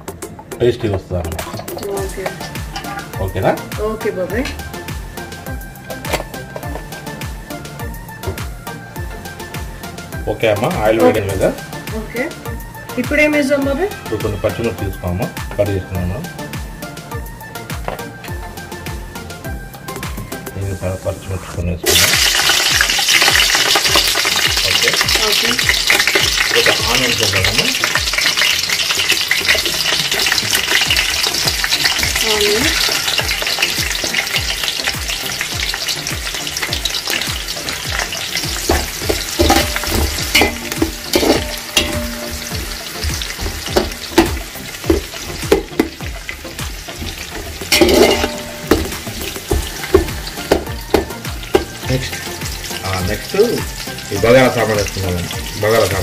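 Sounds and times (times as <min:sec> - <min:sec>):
chillies sizzling in hot oil: 0:00.6 - 0:56.0
spatula scraping and knocking pan: 0:27.8 - 0:52.2.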